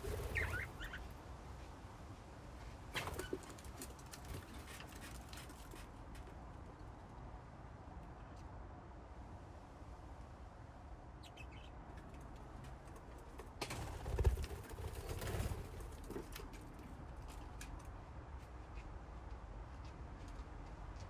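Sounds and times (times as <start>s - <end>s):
wings flapping: 0.0s - 1.0s, 3.0s - 5.7s, 13.6s - 16.5s
budgies chirping: 0.0s - 1.1s, 11.2s - 11.8s.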